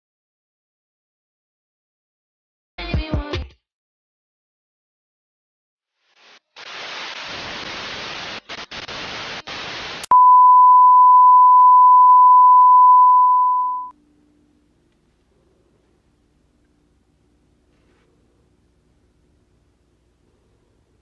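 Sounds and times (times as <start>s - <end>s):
television static hiss: 6.1s - 10.1s
steady single-pitch test tone beep: 10.1s - 13.9s.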